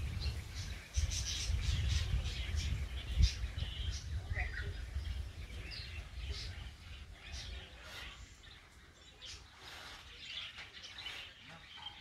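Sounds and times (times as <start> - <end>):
wind rumbling on microphone: 0.0 - 8.7
birds chirping: 0.0 - 12.0.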